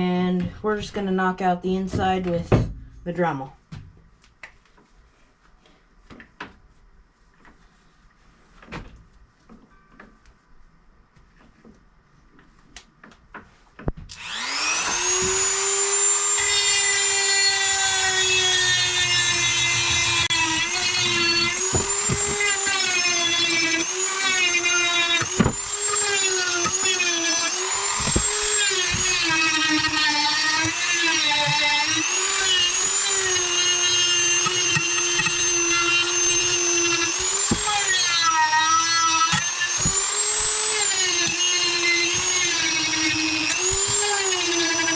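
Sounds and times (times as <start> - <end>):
rotary tool whining: 14.1 - 44.9.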